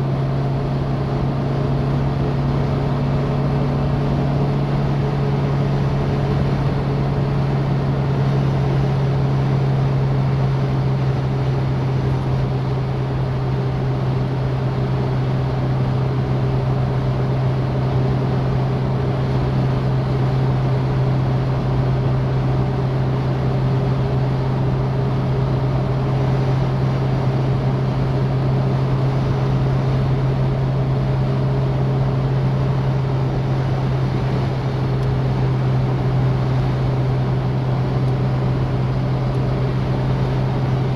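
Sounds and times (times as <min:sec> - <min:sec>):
car engine droning: 0:00.0 - 0:40.9
road and wind noise: 0:00.0 - 0:40.9.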